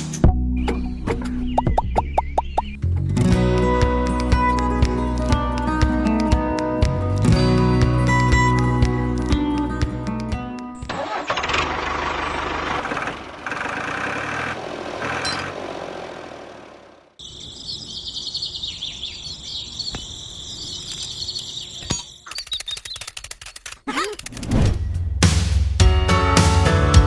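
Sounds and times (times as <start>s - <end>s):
model tractor motor humming: 10.9s - 17.2s.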